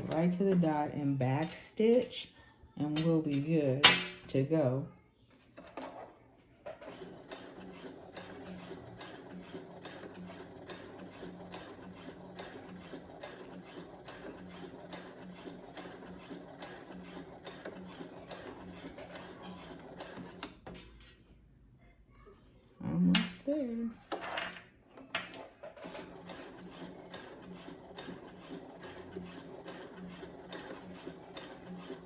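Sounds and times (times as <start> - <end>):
sewing machine stitching: 0.0 - 2.0, 6.7 - 21.1, 25.1 - 32.0.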